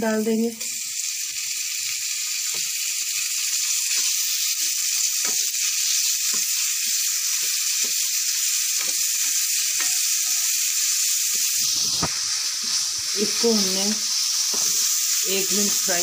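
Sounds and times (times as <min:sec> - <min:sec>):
chicken sizzling in a frying pan: 0:00.0 - 0:16.0
spoon knocking in pan: 0:03.8 - 0:05.6, 0:06.2 - 0:08.1, 0:08.7 - 0:10.5, 0:14.5 - 0:15.0.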